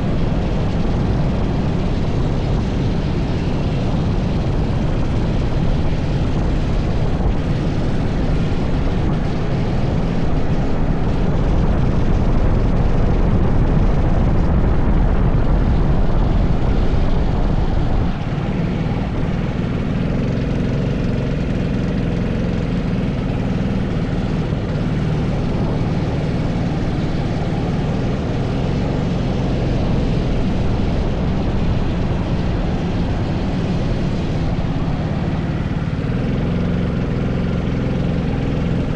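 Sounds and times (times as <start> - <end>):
kart engine running at speed: 0.0 - 38.9.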